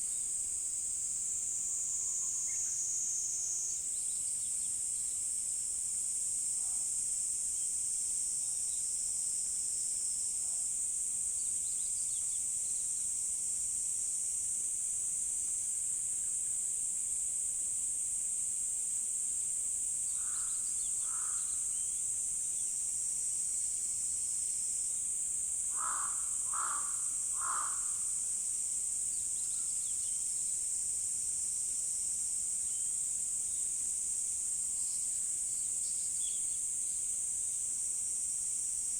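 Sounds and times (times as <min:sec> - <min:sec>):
insects chorus: 0:00.0 - 0:38.9
crow cawing: 0:20.2 - 0:21.5, 0:25.7 - 0:28.1.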